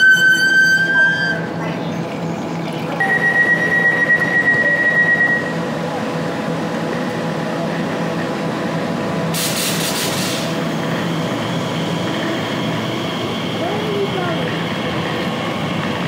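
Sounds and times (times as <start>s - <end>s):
electric train whine: 0.0s - 16.0s
high warning tone: 2.9s - 5.7s
air hiss: 9.4s - 10.6s.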